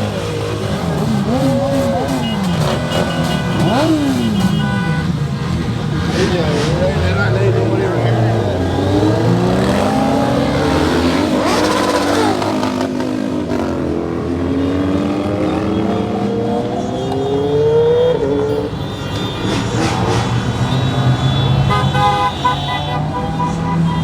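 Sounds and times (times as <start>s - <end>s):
car accelerating: 0.0s - 18.7s
car engines in traffic: 0.0s - 24.0s.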